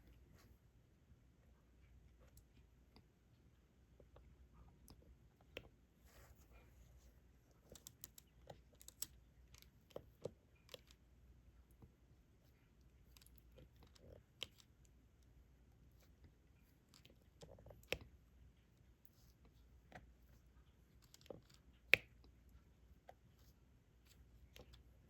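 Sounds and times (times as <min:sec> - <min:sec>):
stylus clicking and tapping: 0:07.7 - 0:11.0.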